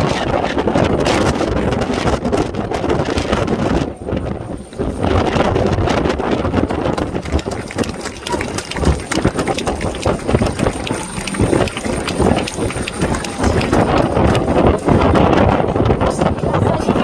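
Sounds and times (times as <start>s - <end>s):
wind buffeting microphone: 0.0s - 17.0s
helicopter rotor chopping: 6.4s - 16.6s.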